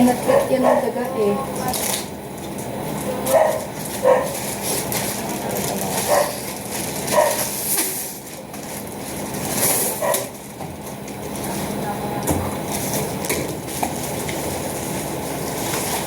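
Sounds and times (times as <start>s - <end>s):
dog barking: 0.3s - 1.0s, 3.3s - 4.4s, 6.1s - 6.4s, 7.1s - 7.4s, 10.0s - 10.3s.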